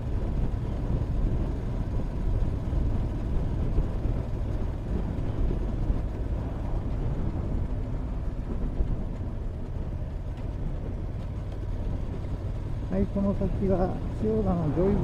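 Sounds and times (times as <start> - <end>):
wind rush on microphone: 0.0 - 15.0
motorcycle engine: 9.2 - 15.0.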